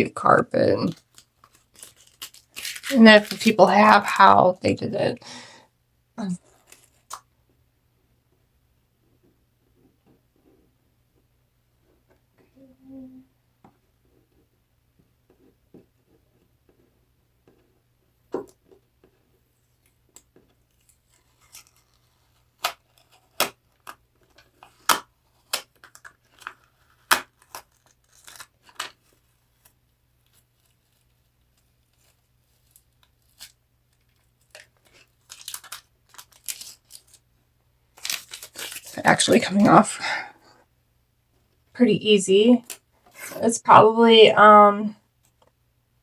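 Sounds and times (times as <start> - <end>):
scratchy tearing: 0.9 - 4.1, 20.7 - 33.6, 34.2 - 37.2, 38.0 - 39.4.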